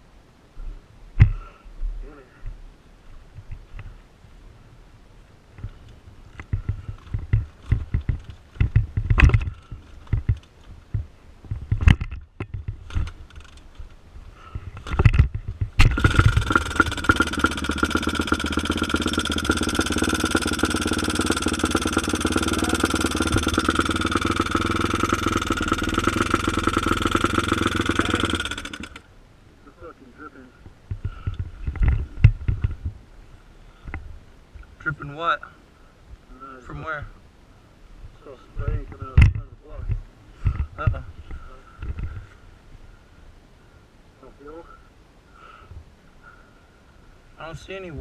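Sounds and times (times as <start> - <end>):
dirt bike kick start thumps: 6.4 - 13.9, 14.7 - 17.8
dirt bike engine idling: 14.8 - 29.1.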